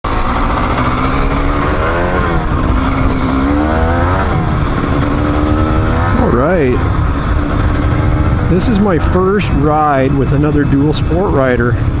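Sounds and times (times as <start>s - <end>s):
dirt bike engine revving: 0.1s - 11.4s.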